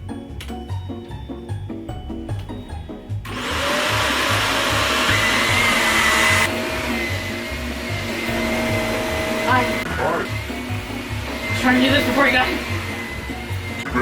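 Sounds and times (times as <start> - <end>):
background music with steady beat: 0.0 - 14.0
vacuum cleaner whining: 3.2 - 14.0.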